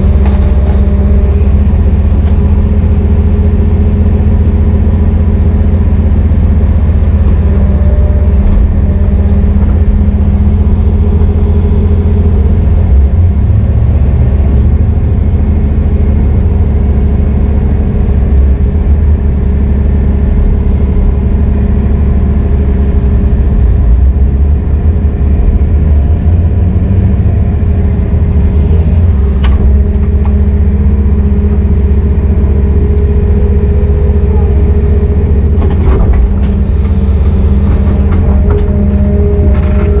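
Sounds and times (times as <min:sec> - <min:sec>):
heavy diesel engine running: 0:00.0 - 0:40.0.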